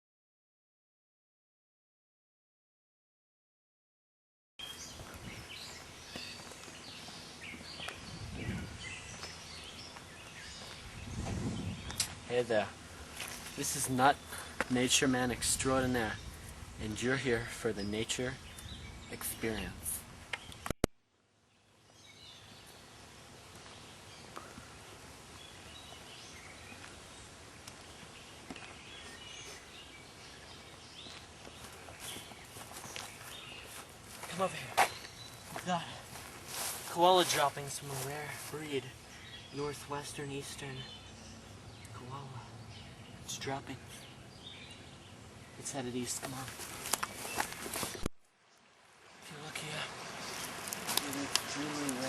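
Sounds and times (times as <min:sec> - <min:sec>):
birds chirping: 0:04.6 - 0:20.8, 0:21.5 - 0:52.0
steady background hiss: 0:11.8 - 0:20.5, 0:21.5 - 0:52.0
steady hiss: 0:48.8 - 0:52.0.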